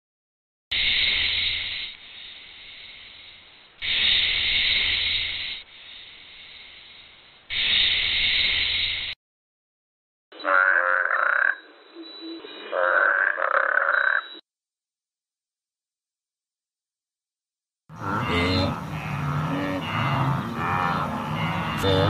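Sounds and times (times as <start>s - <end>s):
pitched animal call: 10.4s - 11.6s, 12.7s - 14.3s, 17.9s - 22.0s
rasping animal calls: 10.4s - 11.6s, 12.7s - 14.2s, 17.9s - 22.0s.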